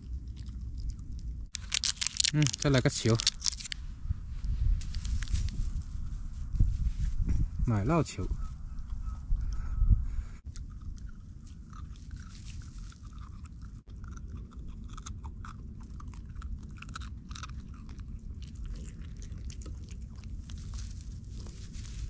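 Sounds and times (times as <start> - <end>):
dog chewing dry treats: 0.0 - 3.8, 10.5 - 21.8
low rumble: 0.0 - 11.8.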